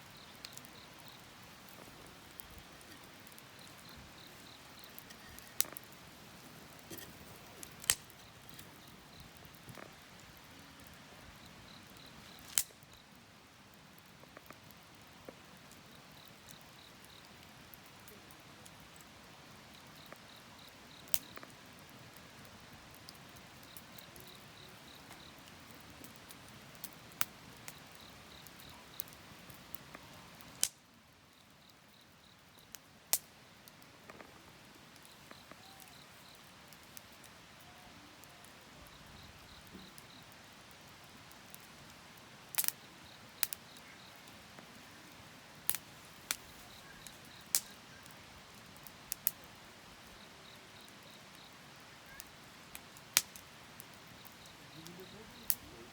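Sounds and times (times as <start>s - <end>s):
insect chirping in trills: 0.0s - 6.8s, 27.4s - 30.5s, 31.2s - 32.8s, 34.0s - 40.4s, 42.6s - 52.8s, 53.4s - 55.9s
wood fire crackling and popping: 0.0s - 55.9s.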